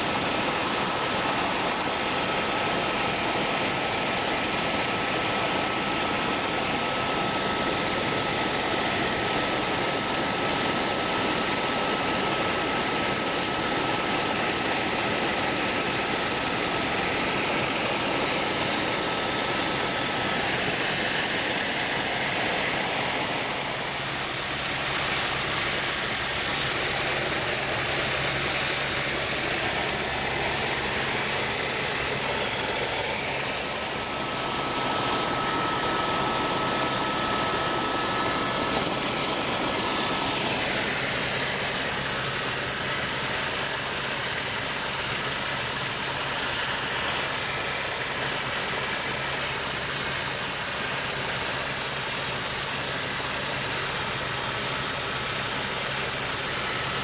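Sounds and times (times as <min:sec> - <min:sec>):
aircraft engine drone: 0:00.0 - 0:57.0
thin steady whine: 0:00.0 - 0:57.0.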